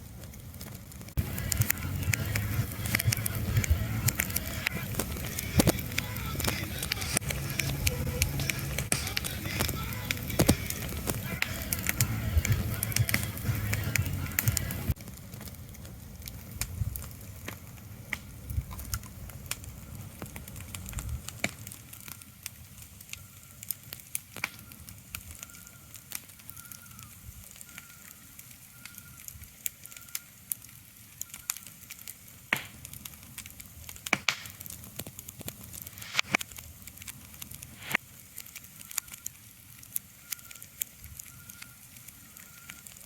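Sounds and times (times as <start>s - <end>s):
sharp crackling clicks: 0.0s - 43.0s.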